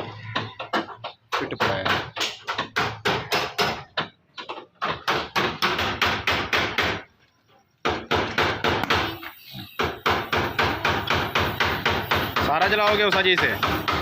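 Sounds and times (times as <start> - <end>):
hammer on car body metal: 4.8 - 7.1, 9.8 - 14.0.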